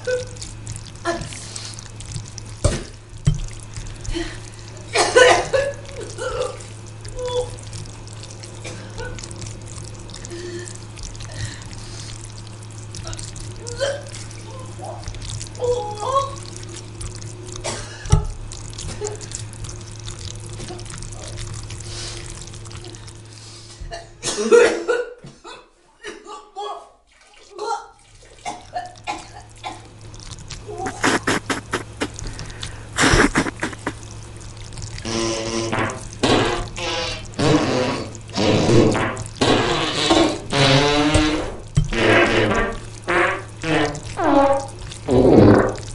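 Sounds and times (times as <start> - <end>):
wet squelching and dripping: 0.0 - 24.0, 27.1 - 45.9
steady low hum: 0.0 - 24.3, 28.2 - 39.6
wet clicks: 30.1 - 37.3.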